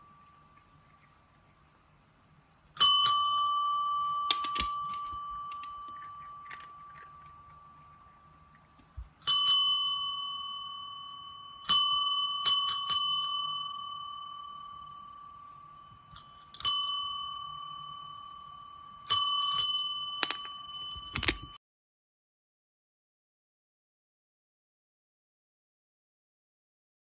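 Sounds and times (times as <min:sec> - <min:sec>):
small metal bell ringing: 0:02.8 - 0:08.6, 0:09.2 - 0:21.6.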